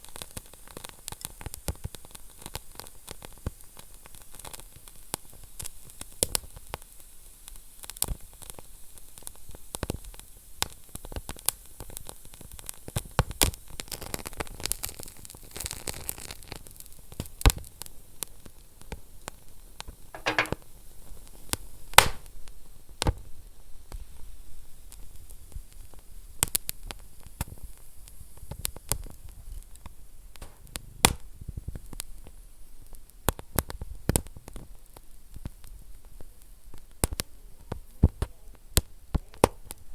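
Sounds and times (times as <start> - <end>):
fire popping: 22.0 - 22.3, 28.4 - 39.9
wood fire crackling: 22.0 - 22.3, 27.6 - 39.9
fire hissing: 30.2 - 31.6.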